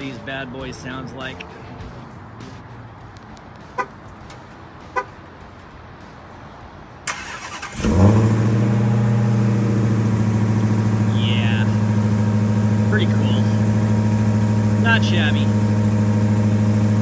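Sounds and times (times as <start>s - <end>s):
car engine starting and idling: 0.0s - 17.0s
car horn chirps: 3.7s - 4.0s, 4.9s - 5.2s
car starter cranking: 7.0s - 9.5s.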